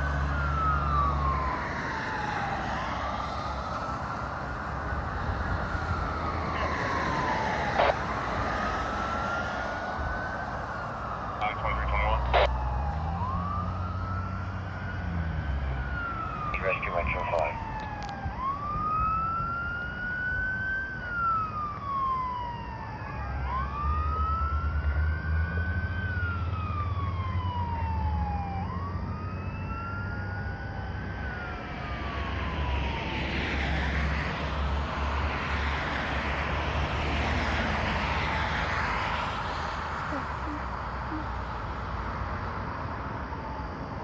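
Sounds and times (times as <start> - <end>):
siren wailing: 0.0 - 44.0.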